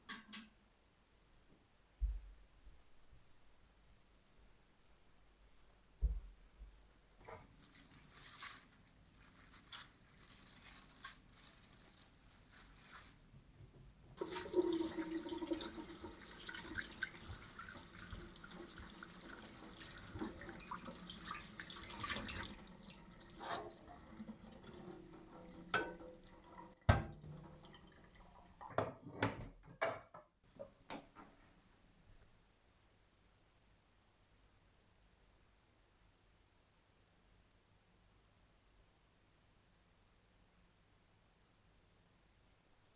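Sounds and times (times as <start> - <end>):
water running from tap: 14.2 - 28.6.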